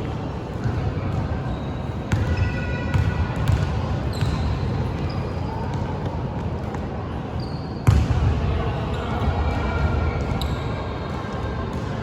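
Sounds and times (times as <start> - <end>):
basketball bouncing on floor: 2.1 - 4.4.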